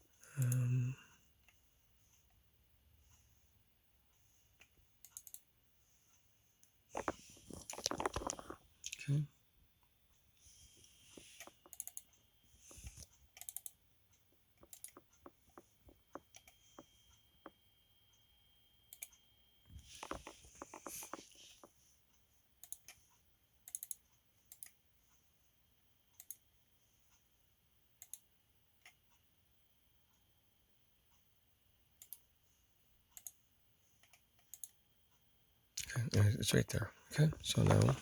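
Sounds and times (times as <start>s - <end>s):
faint clicks and taps: 4.1s - 9.0s, 10.8s - 17.6s, 18.9s - 25.2s.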